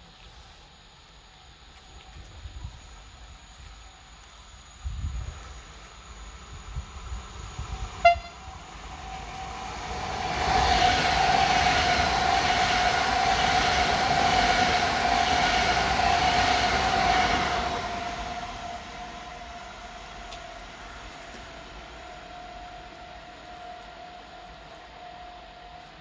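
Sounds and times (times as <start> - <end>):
train rushing past: 6.0 - 26.0
train horn: 8.0 - 9.3, 17.0 - 26.0.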